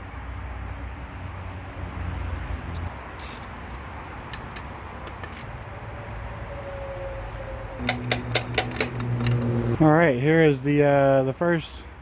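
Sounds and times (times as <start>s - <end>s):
metallic clicks of tools: 2.7s - 5.5s, 7.8s - 9.6s.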